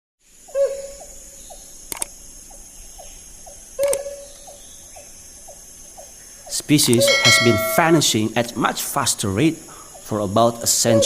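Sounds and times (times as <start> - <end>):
hornbill calling: 0.5 - 1.8, 2.4 - 8.4, 9.6 - 11.0
sharp double click: 1.9 - 2.1, 3.8 - 4.1, 6.8 - 7.9.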